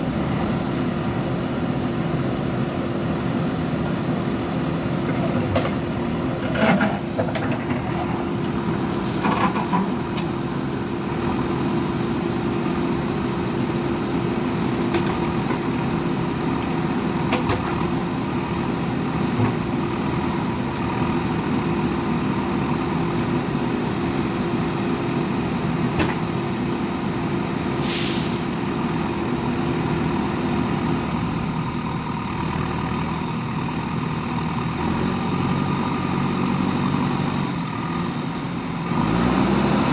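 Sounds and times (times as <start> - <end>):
backhoe diesel engine under load: 0.0 - 39.9
short hiss: 27.8 - 28.4.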